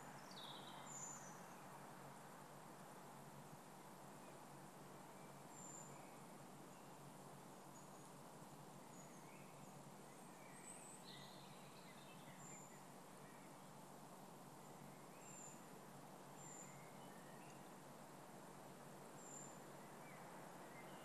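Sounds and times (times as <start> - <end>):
faint hiss: 0.0 - 21.0
faint bird chirps: 0.1 - 1.6, 8.8 - 13.7, 14.6 - 15.7, 16.3 - 17.7.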